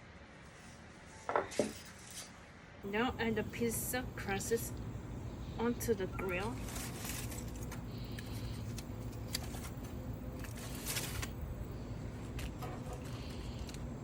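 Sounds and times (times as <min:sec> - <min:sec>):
foil crinkling: 0:06.2 - 0:14.0.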